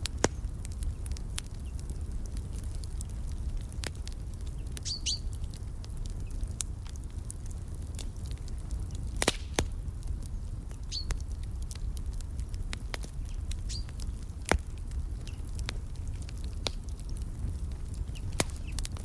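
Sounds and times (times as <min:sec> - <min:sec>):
wood fire crackling: 0:00.0 - 0:19.0
bird chirping: 0:04.8 - 0:05.3, 0:10.9 - 0:11.1.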